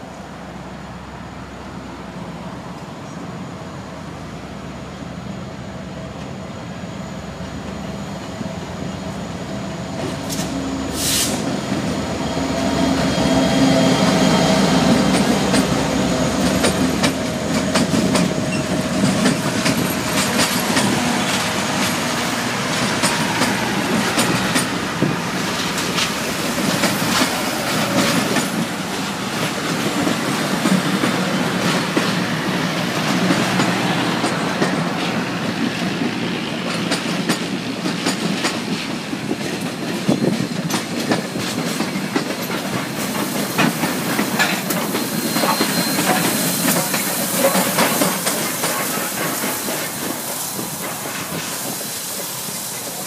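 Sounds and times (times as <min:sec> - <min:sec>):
diesel locomotive engines: 0:00.0 - 0:53.0
wheels clicking over rail joints: 0:35.6 - 0:53.0.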